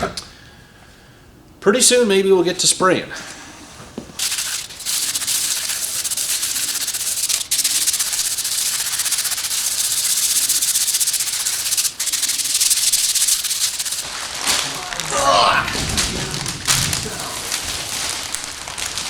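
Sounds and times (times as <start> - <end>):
loud hiss of stripping work: 4.2 - 14.8.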